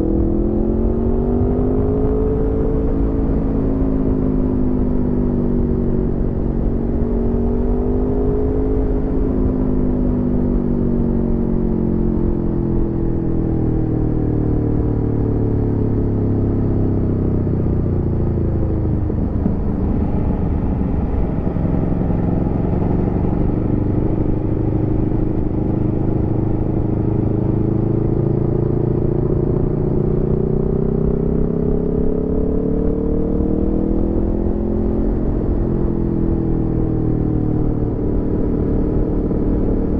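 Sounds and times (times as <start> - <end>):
motorcycle engine: 17.9 - 32.0.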